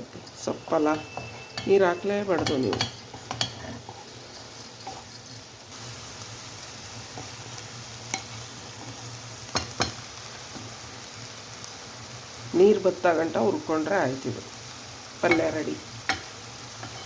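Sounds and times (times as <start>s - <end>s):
greens sizzling in a pan: 0.0s - 17.0s
spoon scraping and clinking on pan: 0.3s - 5.5s, 8.0s - 8.9s, 9.5s - 10.7s, 14.5s - 17.0s.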